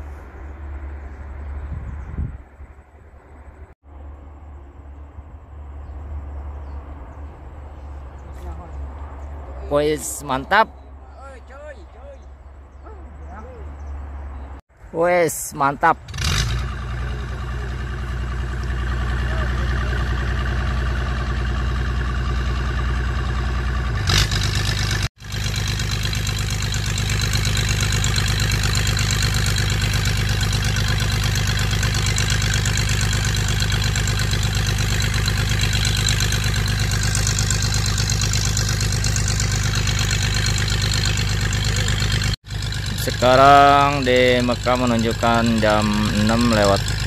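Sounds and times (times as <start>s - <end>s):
motor droning: 16.4s - 47.0s.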